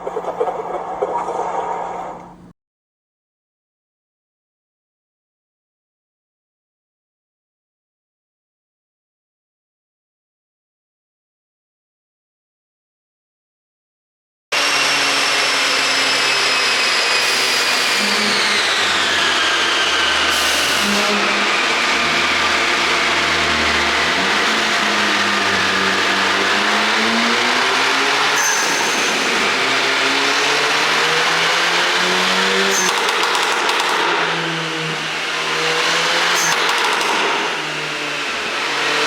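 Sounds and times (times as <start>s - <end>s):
high turbo whine: 14.6s - 39.0s
car engine revving: 15.6s - 39.0s.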